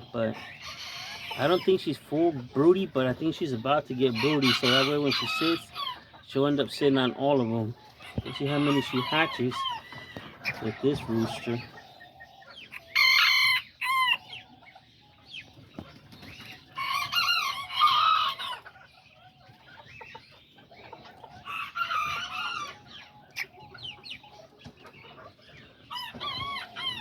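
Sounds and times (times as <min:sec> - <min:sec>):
roosters crowing: 0:00.0 - 0:14.6, 0:16.5 - 0:19.0, 0:20.9 - 0:24.0, 0:25.7 - 0:27.0
hens clucking softly: 0:00.0 - 0:27.0.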